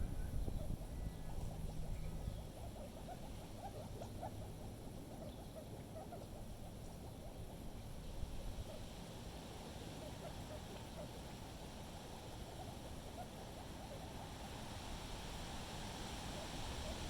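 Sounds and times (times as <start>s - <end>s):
wind rumbling on microphone: 0.0s - 2.6s.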